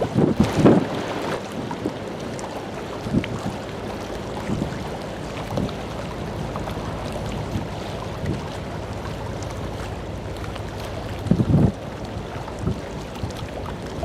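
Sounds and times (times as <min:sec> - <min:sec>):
background rumble: 0:00.0 - 0:14.0
wind buffeting microphone: 0:00.0 - 0:14.0.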